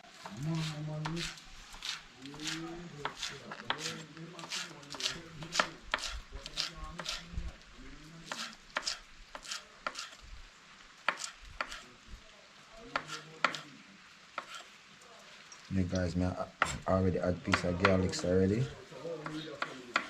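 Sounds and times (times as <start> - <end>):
knife chopping on cutting board: 19.2 - 20.0.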